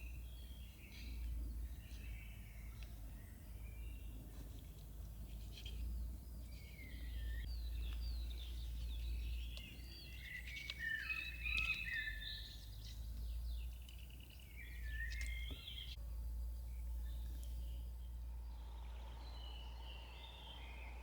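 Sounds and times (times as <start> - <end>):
songbirds chirping and singing: 0.0 - 21.0
low steady rumble: 11.2 - 21.0.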